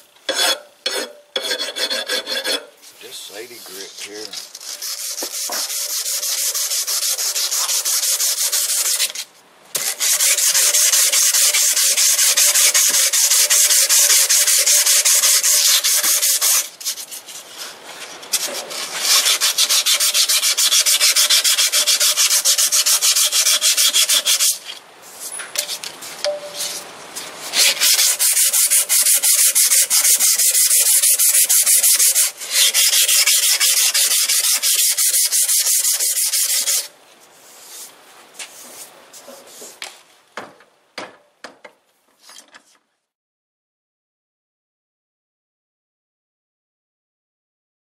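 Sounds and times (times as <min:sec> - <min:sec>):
file rasping against metal: 0:00.3 - 0:02.7, 0:03.7 - 0:09.2, 0:09.8 - 0:17.0, 0:18.3 - 0:24.6, 0:27.5 - 0:36.9.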